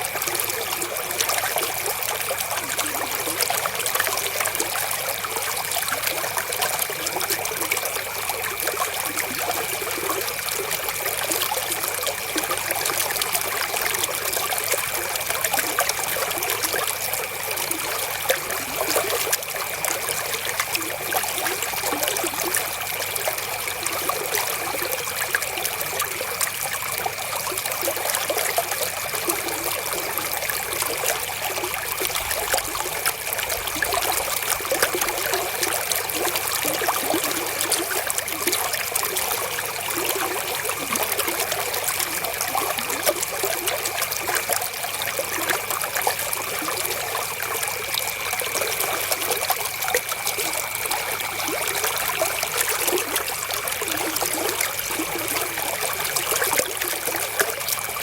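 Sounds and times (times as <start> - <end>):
river water flowing and trickling: 0.0 - 58.0
small water splashes: 0.0 - 58.0.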